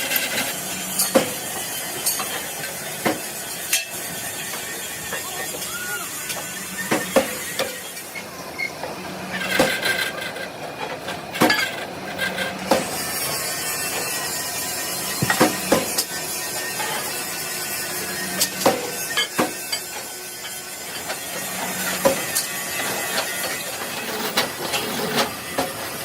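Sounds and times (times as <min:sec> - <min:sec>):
metal clanks and knocks: 0:15.1 - 0:16.1.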